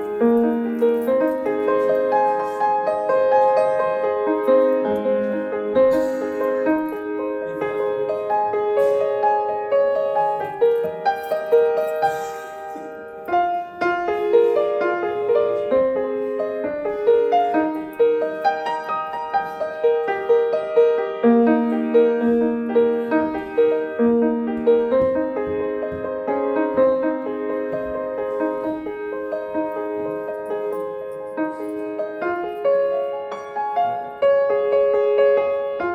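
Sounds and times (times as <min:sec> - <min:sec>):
slow piano music: 0:00.0 - 0:35.9.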